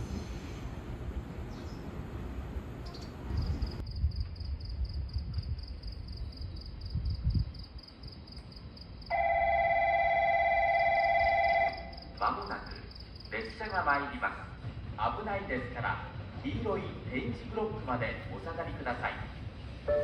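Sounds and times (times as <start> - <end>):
low train rumble: 0.0 - 20.0
electronic platform bell ringing: 9.1 - 12.0.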